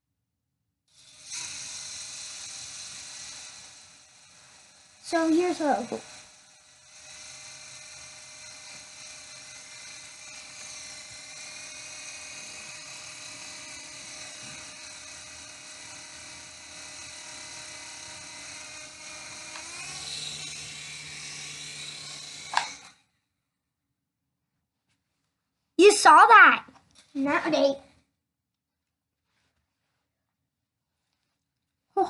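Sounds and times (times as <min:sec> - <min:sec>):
toy helicopter motor whining: 0:00.9 - 0:23.1.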